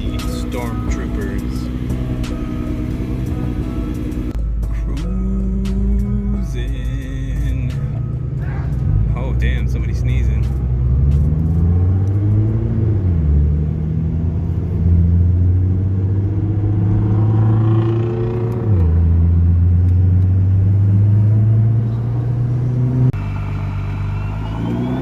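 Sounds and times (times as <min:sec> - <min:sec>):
car engine shifting gears: 0:00.0 - 0:04.4, 0:10.2 - 0:25.0.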